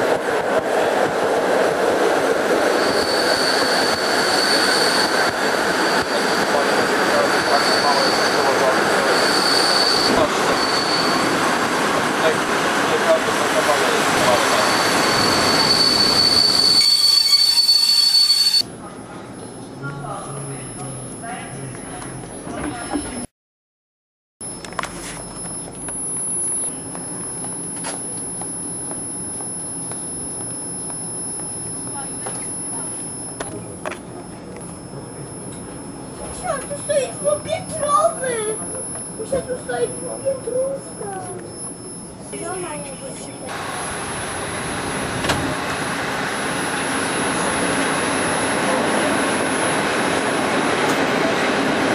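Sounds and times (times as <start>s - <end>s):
train carriage rumbling: 0.0s - 19.4s, 26.8s - 42.3s, 42.9s - 51.9s
thin high whine: 2.8s - 11.3s, 13.6s - 18.7s, 24.4s - 50.7s.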